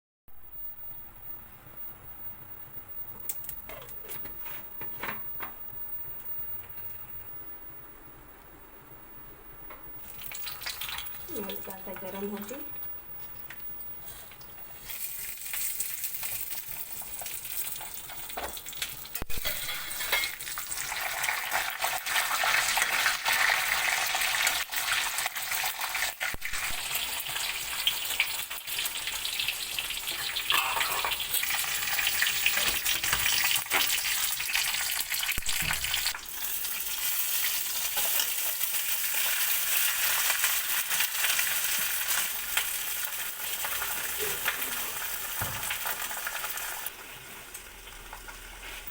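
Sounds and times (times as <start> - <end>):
food sizzling in hot oil: 10.0 - 12.9, 14.1 - 48.9.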